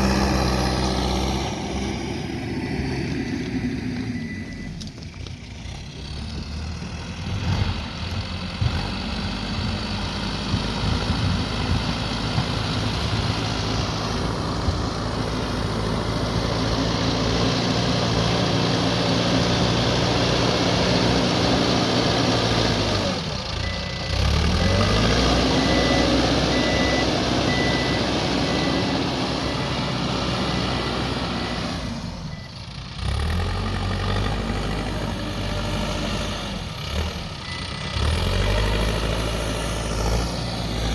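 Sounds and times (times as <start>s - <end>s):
diesel engine under load: 0.0s - 40.9s
reversing alarm beeping: 1.4s - 5.5s, 23.6s - 32.6s.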